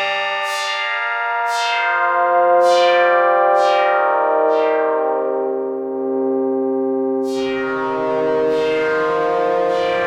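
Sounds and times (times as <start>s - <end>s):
synthesizer sustained chords: 3.2s - 10.0s.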